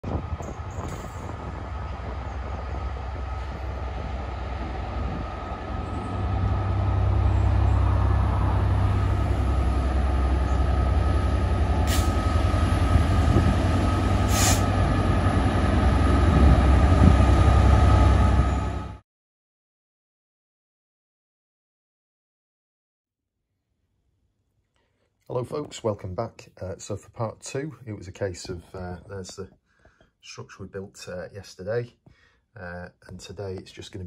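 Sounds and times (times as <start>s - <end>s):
diesel locomotive engine drone: 0.0s - 19.0s
wagons rumbling on track: 0.0s - 19.0s.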